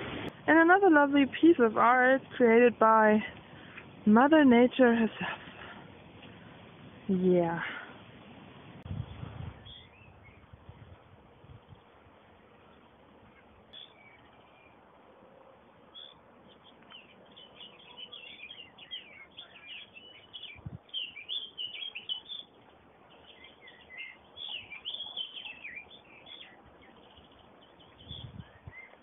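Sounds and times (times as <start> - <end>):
small birds chirping: 8.9 - 11.0, 11.7 - 15.0, 15.9 - 29.0.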